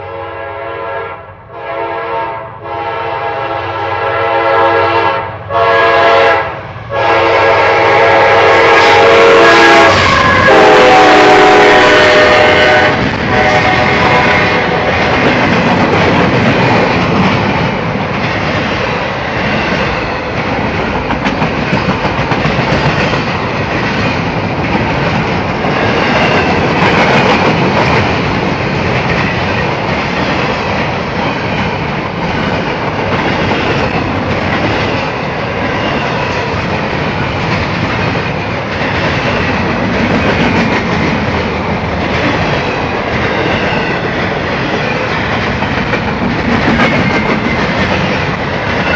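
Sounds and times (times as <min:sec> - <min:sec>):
freight train wheels on rail: 0:00.0 - 0:48.9.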